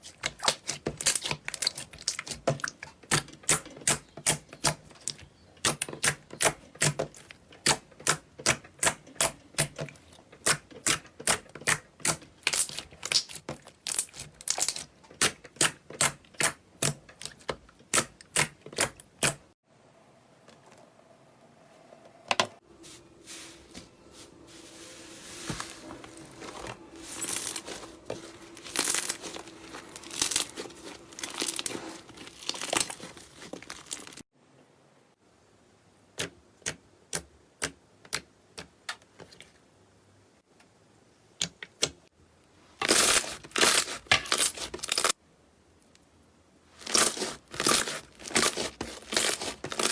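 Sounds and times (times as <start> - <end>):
slime squishing and crinkling: 0.0 - 9.3, 9.9 - 19.4, 23.3 - 34.2, 42.8 - 45.2, 46.7 - 49.9.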